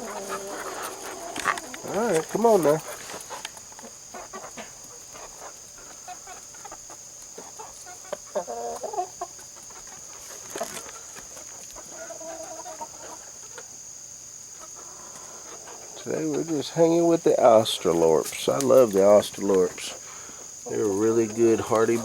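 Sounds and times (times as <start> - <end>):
chickens clucking and calling: 0.0 - 22.0.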